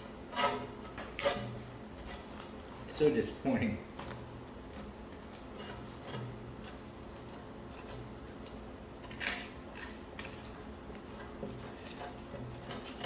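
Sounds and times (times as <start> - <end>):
scraper scraping skillet: 0.0 - 3.0, 5.3 - 13.0.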